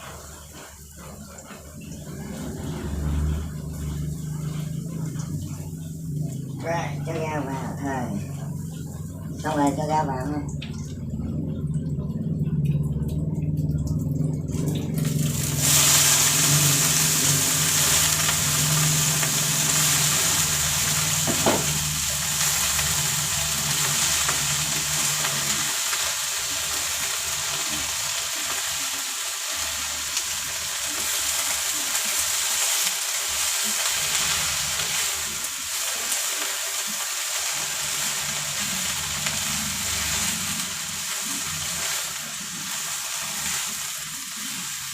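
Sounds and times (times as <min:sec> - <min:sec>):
vegetables sizzling in hot oil: 0:00.0 - 0:07.9, 0:14.9 - 0:44.9
low hum: 0:01.2 - 0:27.8.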